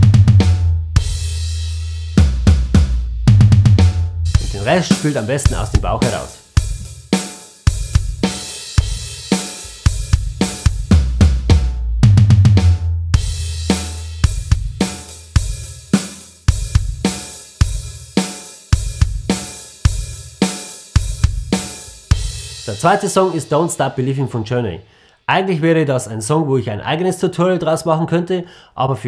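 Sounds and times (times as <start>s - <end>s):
drum kit rock groove: 2.2s - 24.1s
drum fill on toms: 3.4s - 12.6s.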